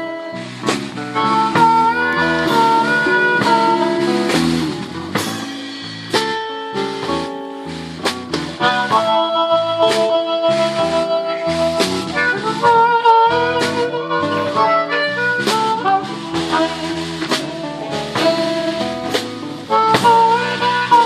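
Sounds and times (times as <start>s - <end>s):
harmonica notes: 0.0s - 5.3s, 8.6s - 21.0s
blues band playing: 0.0s - 21.0s
drum hits: 0.6s - 7.2s.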